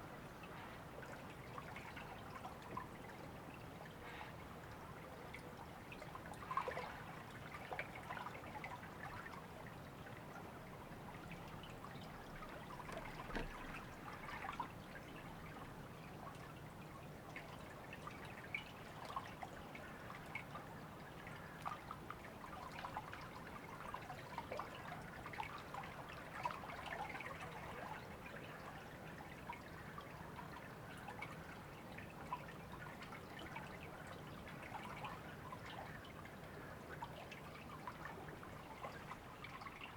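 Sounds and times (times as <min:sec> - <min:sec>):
river trickling: 0:00.1 - 0:39.9
water splashes and drips: 0:01.1 - 0:16.6.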